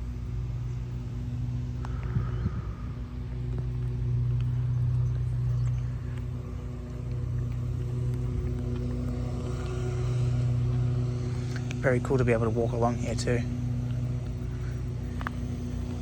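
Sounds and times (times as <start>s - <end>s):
vehicle engine idling: 0.0s - 16.0s
faint ticks: 1.8s - 2.2s, 13.8s - 16.0s.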